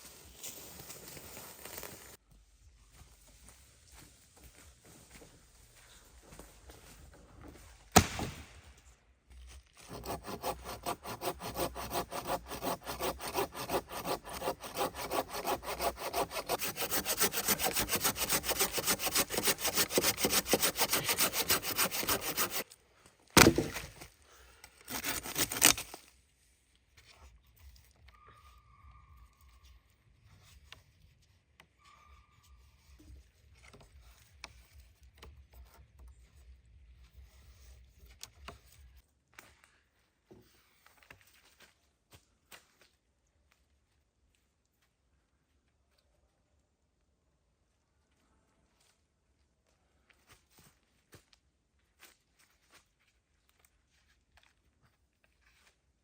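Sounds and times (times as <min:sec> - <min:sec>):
hand saw cutting wood: 0:09.8 - 0:22.8, 0:24.8 - 0:26.0
short rasping burst: 0:09.9 - 0:22.6.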